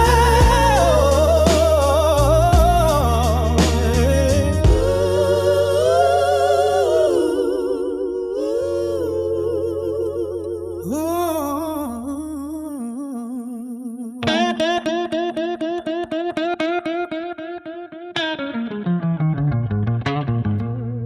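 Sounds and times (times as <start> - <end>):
picked guitar line: 0.0 - 7.7, 14.2 - 21.0
low bass tone: 0.0 - 12.8
wordless vocal humming: 0.0 - 15.5.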